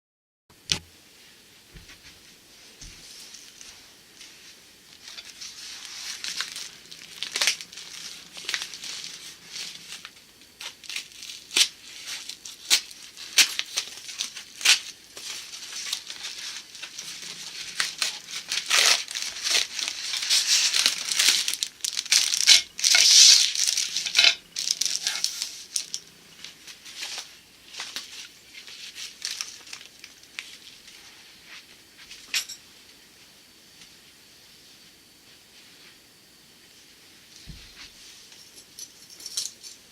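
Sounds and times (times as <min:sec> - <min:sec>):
packaging crinkling and tearing: 0:05.0 - 0:31.0.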